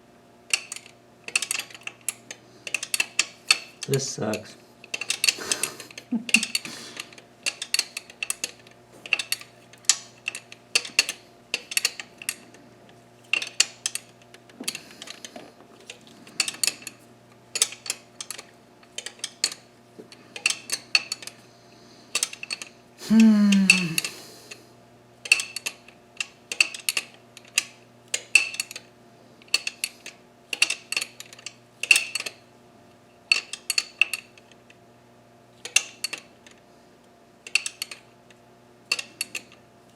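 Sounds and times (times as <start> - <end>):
hand ratchet clicking: 0.5 - 12.5, 17.6 - 19.6, 22.1 - 24.2, 37.5 - 38.1, 38.9 - 39.6
person grunting: 23.0 - 24.4.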